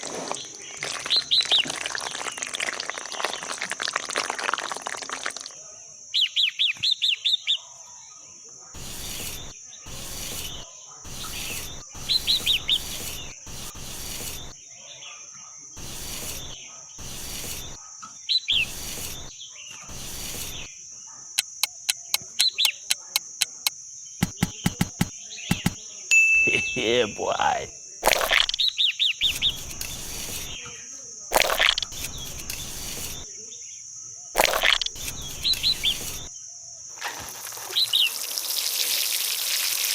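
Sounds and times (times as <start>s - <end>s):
rustling or scraping noises: 8.8s - 14.6s, 15.8s - 17.8s
bird chirping: 21.4s - 25.8s
sharp clicks: 21.4s - 25.8s, 28.0s - 28.7s, 31.3s - 33.2s, 34.4s - 36.3s.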